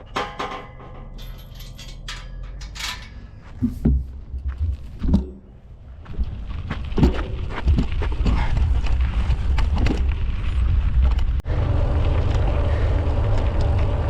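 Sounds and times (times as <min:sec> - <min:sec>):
wind rumble on microphone: 0:03.0 - 0:14.0
bike rattling over dirt trail: 0:03.2 - 0:14.0
mechanical hum: 0:10.3 - 0:14.0.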